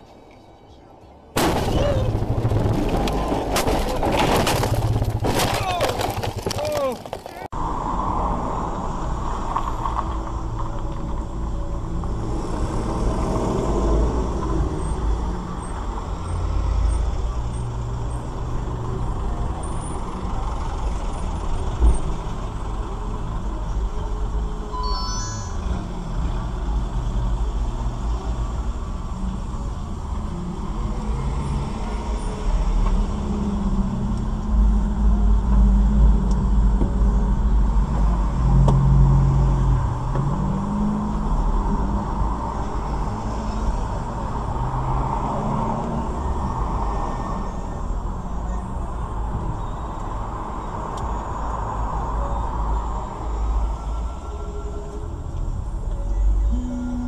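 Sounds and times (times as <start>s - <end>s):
car engine and road noise: 0.0s - 57.0s
short high tone: 24.7s - 26.1s, 56.1s - 57.0s.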